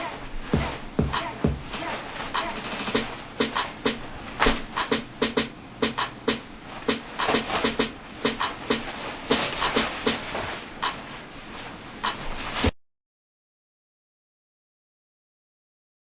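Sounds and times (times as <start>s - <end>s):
sharp percussive knocks: 0.6s - 1.7s, 4.8s - 10.2s.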